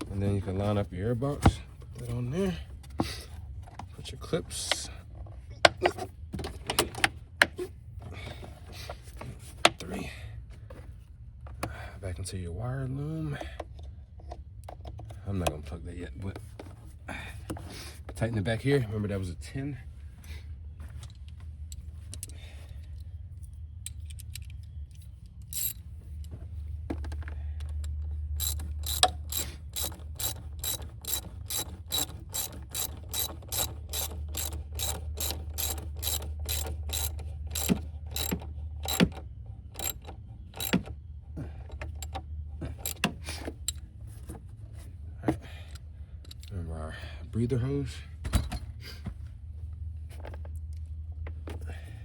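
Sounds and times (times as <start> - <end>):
socket ratchet clicking: 25.3 - 25.8, 27.8 - 40.9, 42.8 - 43.8.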